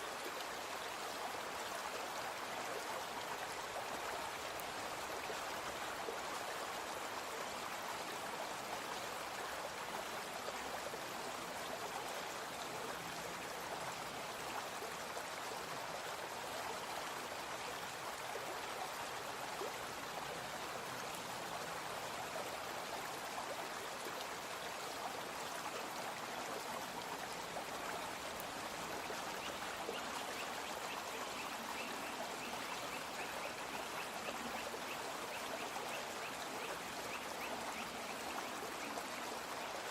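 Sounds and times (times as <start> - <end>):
brook water flowing: 0.0 - 39.9.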